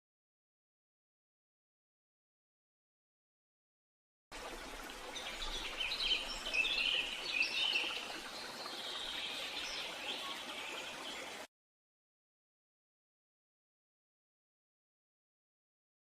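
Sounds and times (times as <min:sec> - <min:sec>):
birds chirping and trilling: 0:05.0 - 0:11.5.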